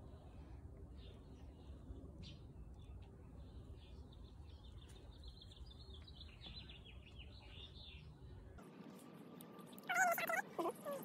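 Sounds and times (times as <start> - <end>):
distant small birds chirping: 0.0 - 8.6.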